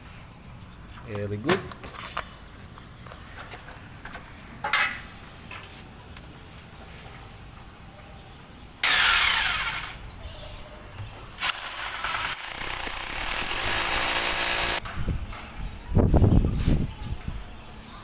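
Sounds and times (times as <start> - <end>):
power drill running: 8.8 - 10.0, 11.4 - 14.8.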